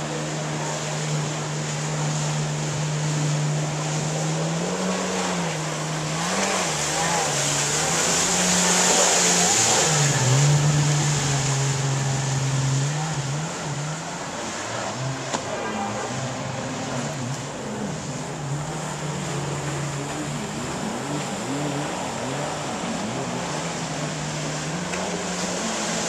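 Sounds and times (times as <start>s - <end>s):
jet ski engines revving: 0.0s - 26.0s
water rushing hiss: 0.0s - 26.0s.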